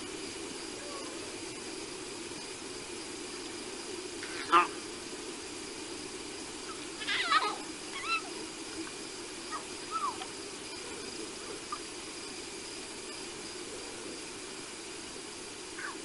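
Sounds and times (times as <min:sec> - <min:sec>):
steady background hum: 0:00.0 - 0:16.0
night bird whistling calls: 0:04.2 - 0:04.8, 0:06.6 - 0:08.4, 0:09.4 - 0:12.2, 0:15.7 - 0:16.0.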